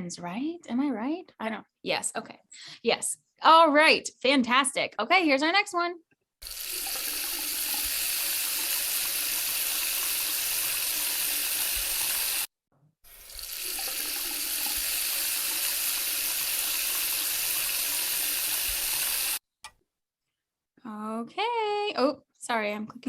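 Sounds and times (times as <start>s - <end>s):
sink tap running water: 6.4s - 12.5s, 13.1s - 19.4s.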